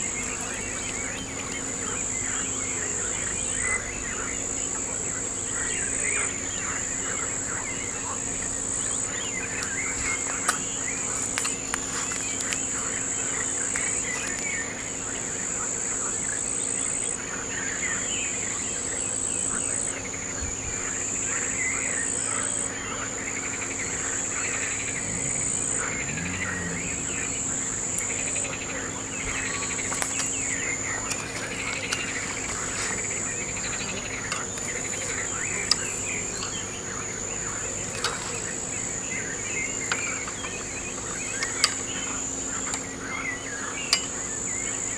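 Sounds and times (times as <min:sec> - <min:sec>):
sharp ticks: 0:00.0 - 0:03.1, 0:23.4 - 0:44.9
birdsong chirps: 0:00.0 - 0:44.9.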